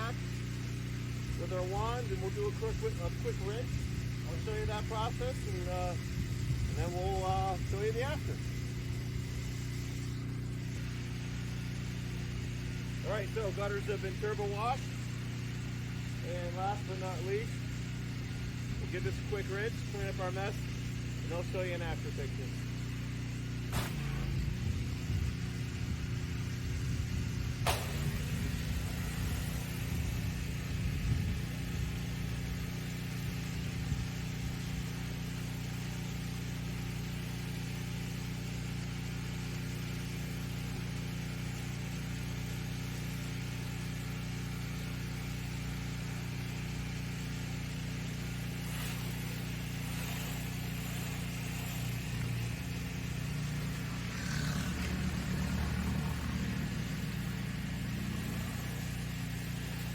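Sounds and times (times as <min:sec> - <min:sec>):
pressure washer engine droning: 0:00.0 - 0:59.9
water spray from wand: 0:18.8 - 0:25.6, 0:26.3 - 0:59.9.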